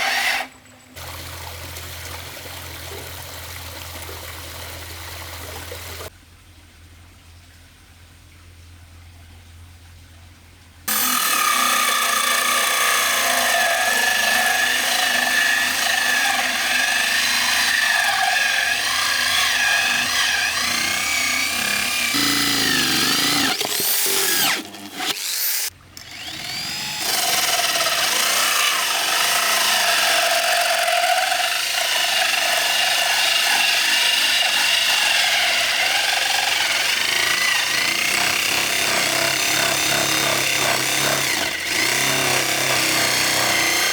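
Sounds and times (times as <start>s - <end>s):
power tool whining under load: 10.9s - 43.9s.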